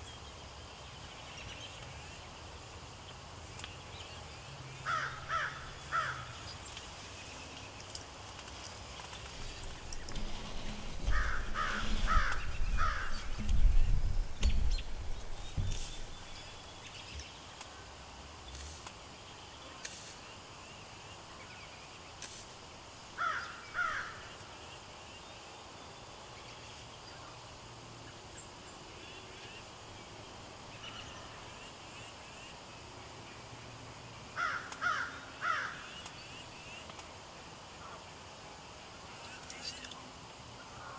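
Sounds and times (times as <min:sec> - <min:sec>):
crow cawing: 0:04.8 - 0:06.4, 0:11.0 - 0:13.5, 0:23.2 - 0:24.3, 0:34.4 - 0:35.8
low rumble: 0:09.5 - 0:16.3.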